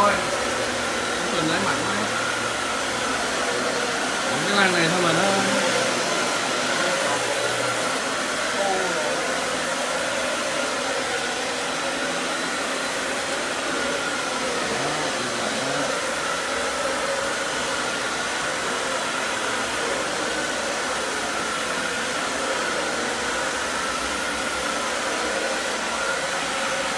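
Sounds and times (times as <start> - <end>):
vacuum cleaner running: 0.0 - 26.9.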